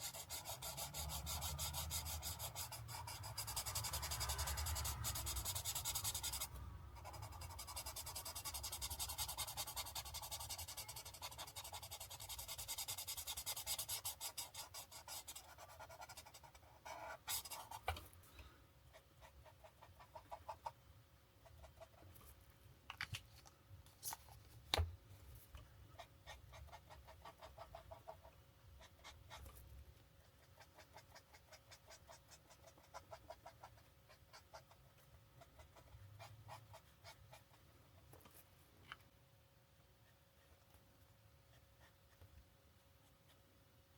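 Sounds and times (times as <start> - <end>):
marker rubbing on paper: 0.0 - 18.0.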